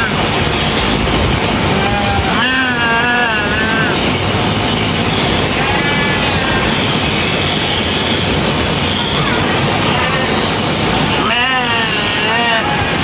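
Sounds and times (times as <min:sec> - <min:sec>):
electric shearing clippers running: 0:00.0 - 0:13.0
sheep bleating: 0:01.7 - 0:04.0, 0:05.5 - 0:06.9, 0:11.2 - 0:13.0.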